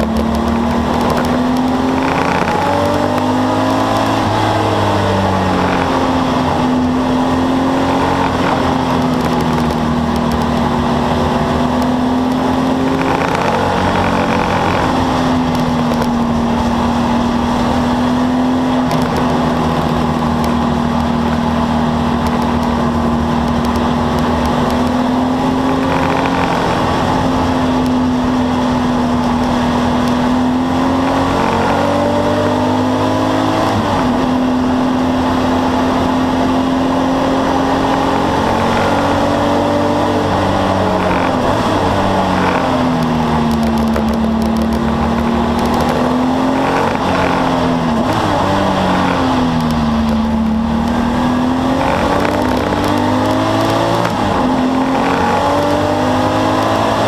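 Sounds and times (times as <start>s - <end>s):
race car engine revving: 0.0s - 57.0s
tyre and road noise: 0.0s - 57.0s.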